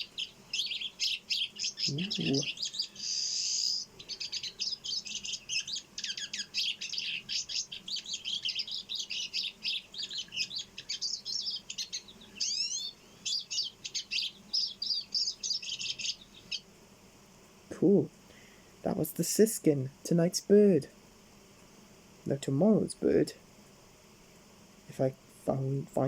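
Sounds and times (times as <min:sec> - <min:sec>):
rising sweeping bird notes: 0:00.0 - 0:16.6
bird twittering song: 0:00.0 - 0:16.7.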